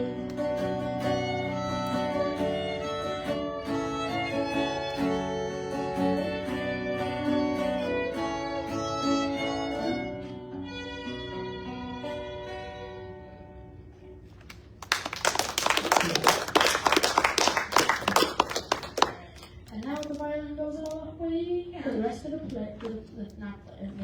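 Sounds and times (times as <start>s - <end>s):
fiddle melody: 0.0s - 14.0s
acoustic guitar: 0.0s - 14.8s.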